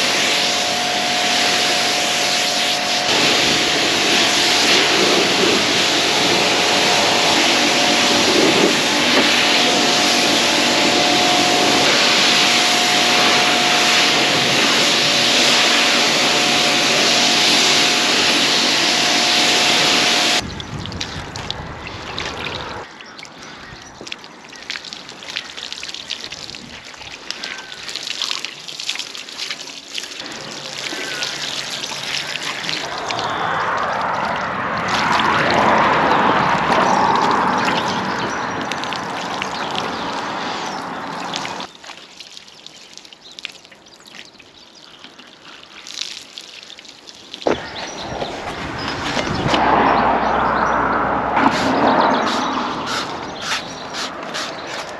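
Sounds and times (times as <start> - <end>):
pressure washer spraying: 0.0 - 20.4, 51.4 - 54.9
water trickling and dripping: 4.4 - 54.9.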